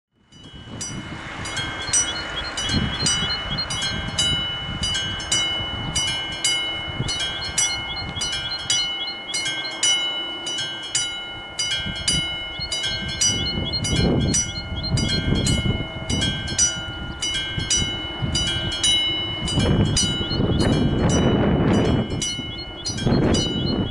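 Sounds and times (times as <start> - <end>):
low rumbling: 0.2 - 23.9
level crossing bell ringing: 0.3 - 23.9.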